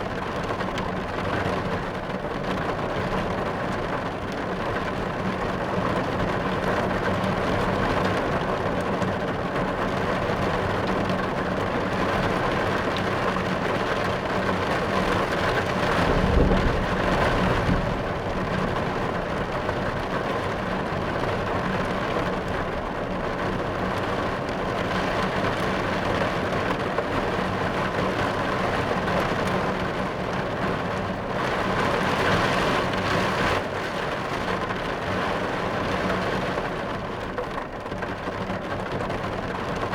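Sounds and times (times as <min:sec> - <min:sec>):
rain on a car roof: 0:00.0 - 0:39.9
low rumble of thunder: 0:14.8 - 0:22.9.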